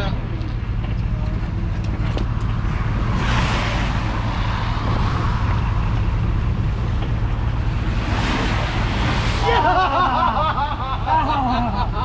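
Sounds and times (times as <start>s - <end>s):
vehicle engine drone: 0.0s - 12.0s
rushing noise: 2.6s - 11.2s.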